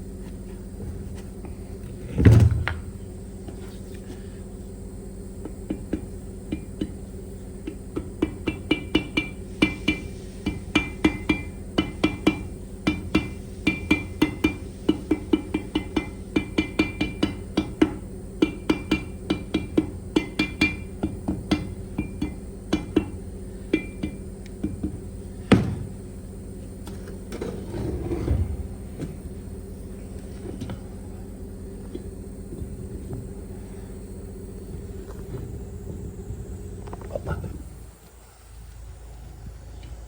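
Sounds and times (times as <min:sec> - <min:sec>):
hammer tapping on metal: 0:07.6 - 0:25.6.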